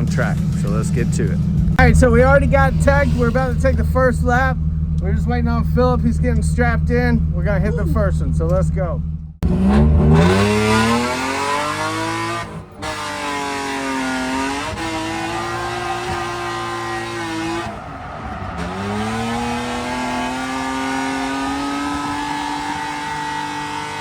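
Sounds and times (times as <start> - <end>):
car engine revving hard: 9.4 - 24.0.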